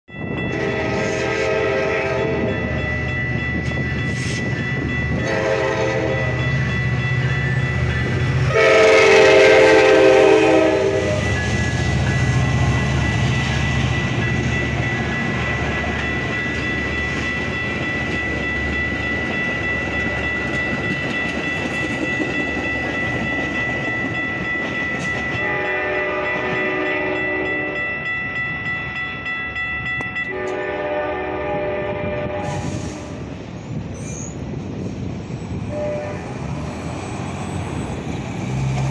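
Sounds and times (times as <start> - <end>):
crossing warning bell ringing: 0.1 - 32.6
train horn blowing: 0.4 - 2.8, 5.1 - 6.5, 8.4 - 11.5, 25.4 - 27.8, 30.2 - 33.3, 35.7 - 36.6
train wheels clattering on rails: 2.0 - 28.9, 36.4 - 38.9.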